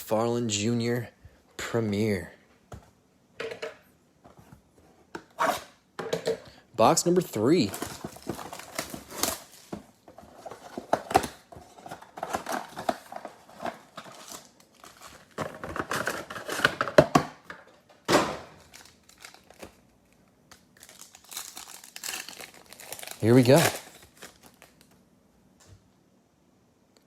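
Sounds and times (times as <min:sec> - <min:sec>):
plastic wrap crinkling: 0:07.6 - 0:16.7, 0:18.6 - 0:25.0
packaging tearing: 0:07.7 - 0:09.7, 0:18.6 - 0:19.8, 0:20.5 - 0:25.0.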